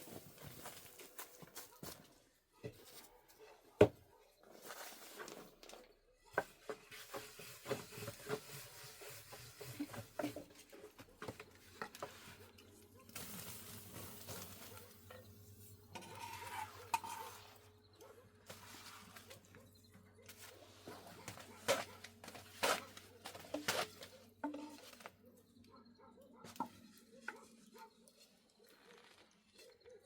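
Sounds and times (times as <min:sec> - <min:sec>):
pots and utensils clattering: 0:15.9 - 0:17.4.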